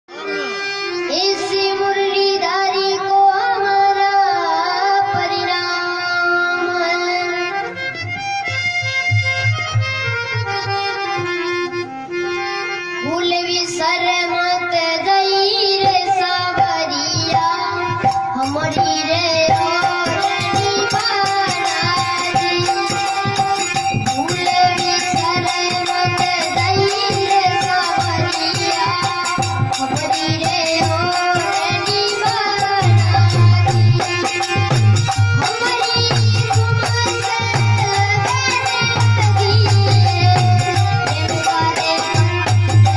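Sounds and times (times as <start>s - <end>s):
harmonium notes: 0.0s - 42.9s
child singing: 0.1s - 7.8s, 12.9s - 42.9s
drum strokes: 15.8s - 42.9s.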